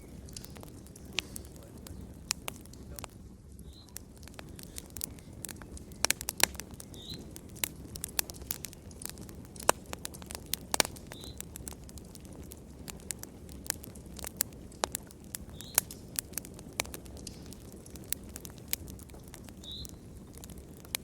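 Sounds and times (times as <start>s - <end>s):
flames rushing: 0.0s - 21.0s
wood fire crackling: 0.0s - 21.0s.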